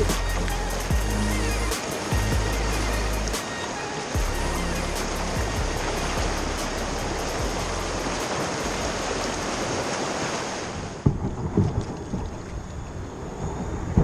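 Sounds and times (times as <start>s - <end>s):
river rapids rushing: 0.0s - 11.0s.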